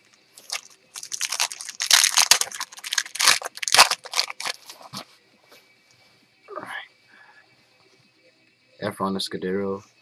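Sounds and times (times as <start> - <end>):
card wrappers rustling and crinkling: 0.4 - 5.0.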